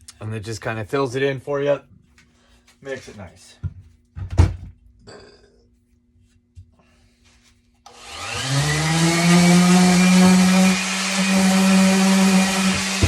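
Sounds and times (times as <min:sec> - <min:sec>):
electric sander running: 0:07.9 - 0:13.0.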